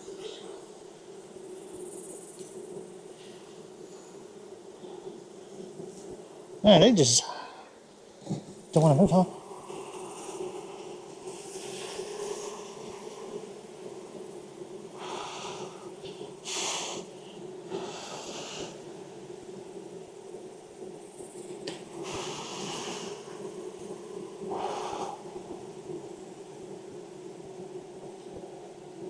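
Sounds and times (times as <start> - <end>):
honeybee colony humming: 6.6 - 10.8
short breathy hisses: 16.4 - 17.1, 22.0 - 23.3.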